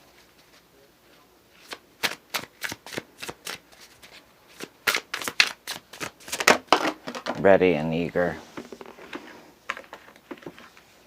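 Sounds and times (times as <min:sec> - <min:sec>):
sharp card snaps: 0:01.6 - 0:03.6, 0:04.6 - 0:06.5
cards being shuffled: 0:01.6 - 0:07.5.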